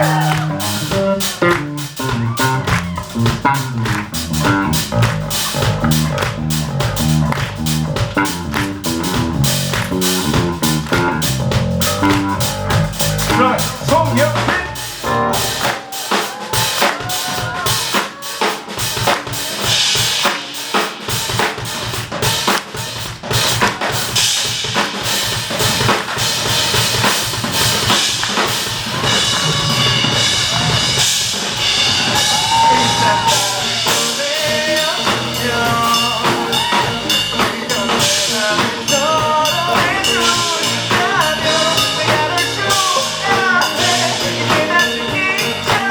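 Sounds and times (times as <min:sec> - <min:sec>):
bending lead guitar: 0:00.0 - 0:15.6, 0:32.6 - 0:45.9
bass drum: 0:00.0 - 0:17.9, 0:21.1 - 0:45.9
rock band playing: 0:00.0 - 0:45.9
snare rimshots: 0:17.9 - 0:28.7.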